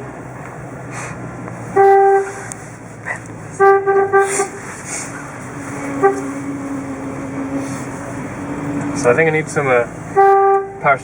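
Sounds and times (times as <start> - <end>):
car engine running: 0.0 - 11.0
car horn honking: 1.7 - 2.6, 3.5 - 4.7, 5.8 - 6.7, 10.1 - 11.0
power steering groan: 1.7 - 11.0.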